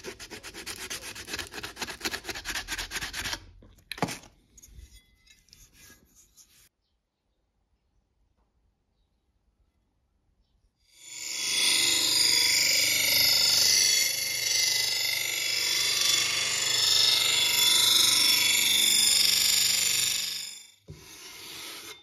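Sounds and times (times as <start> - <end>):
power tool grinding steel: 11.0 - 22.0.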